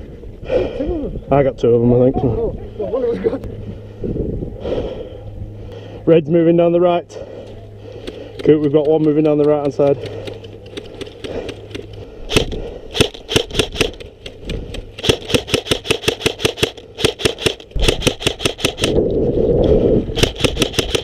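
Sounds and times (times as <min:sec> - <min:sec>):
low rumbling: 0:00.0 - 0:08.4, 0:17.7 - 0:20.6
airsoft guns firing: 0:08.0 - 0:19.0, 0:20.2 - 0:21.0.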